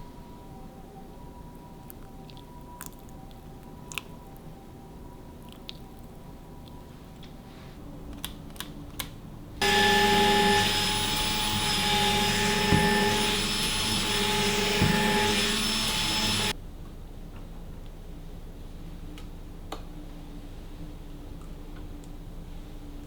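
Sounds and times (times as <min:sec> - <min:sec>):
small appliance motor whining: 0:09.6 - 0:16.6.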